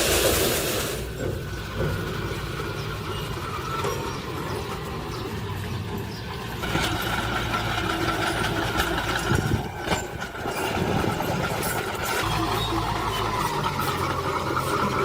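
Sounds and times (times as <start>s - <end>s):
heavy machinery engine running: 0.0s - 15.0s.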